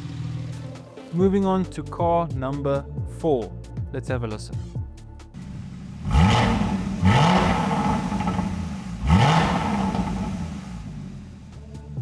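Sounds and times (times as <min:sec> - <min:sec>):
car engine revving: 0:05.4 - 0:11.6.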